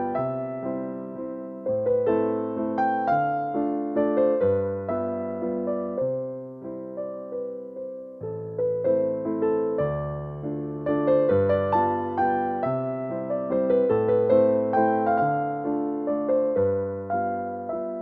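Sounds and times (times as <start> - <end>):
gentle solo piano music: 0.0 - 18.0.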